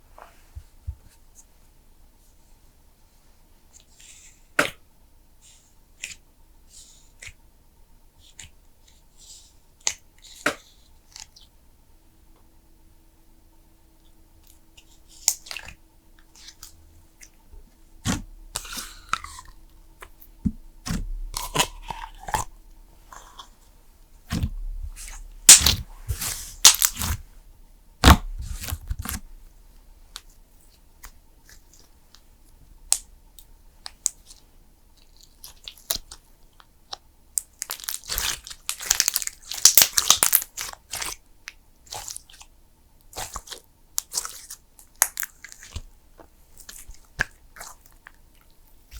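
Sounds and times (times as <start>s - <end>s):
slime squelching and clicking: 24.3s - 27.2s.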